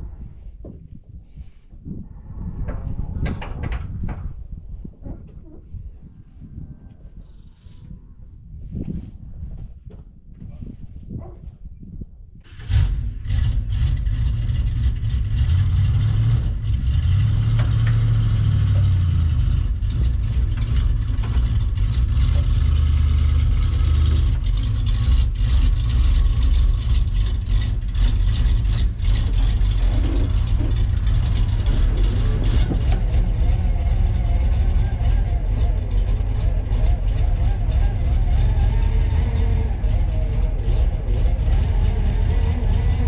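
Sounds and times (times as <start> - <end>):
vehicle engine running: 12.5 - 43.0.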